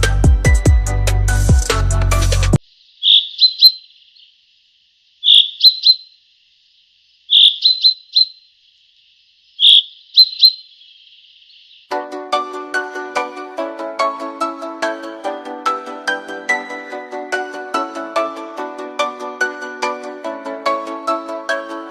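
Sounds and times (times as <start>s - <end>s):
bird chirping: 2.6s - 4.5s, 5.1s - 11.9s.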